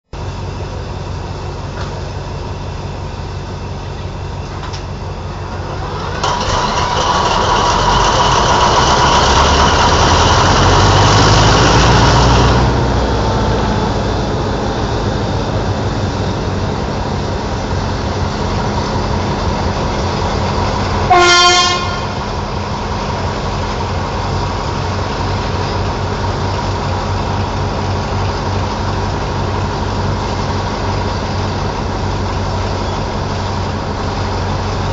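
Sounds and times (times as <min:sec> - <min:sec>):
diesel locomotive engine starting and idling: 0:00.1 - 0:34.9
locomotive horn blast: 0:21.0 - 0:22.5.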